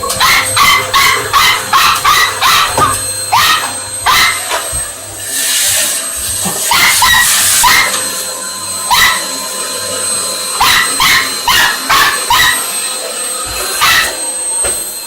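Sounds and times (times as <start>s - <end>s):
vacuum cleaner motor whining: 0.0s - 15.0s
dog barking: 0.1s - 4.7s, 6.7s - 8.1s, 8.8s - 9.4s, 10.6s - 12.8s, 13.7s - 14.2s.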